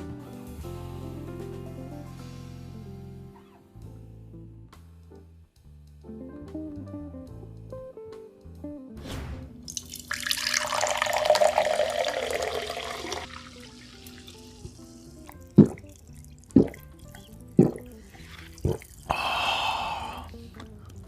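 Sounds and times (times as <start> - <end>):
water running from tap: 9.7 - 19.2.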